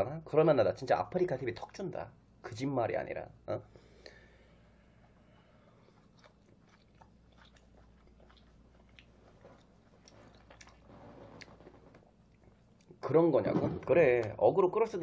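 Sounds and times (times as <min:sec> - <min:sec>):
faint close-up chewing: 0:04.6 - 0:13.0.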